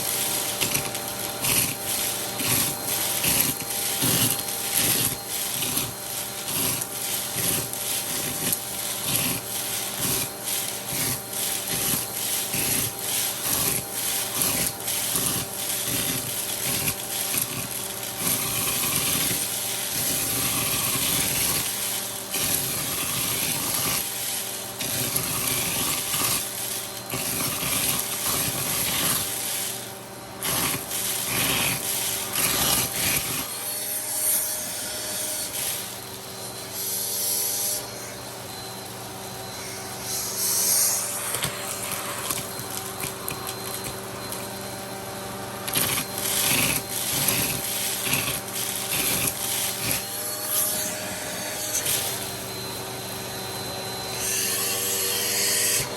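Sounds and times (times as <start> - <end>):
hose tool scraping surfaces: 0.0 - 55.9
vacuum cleaner running: 0.0 - 55.9.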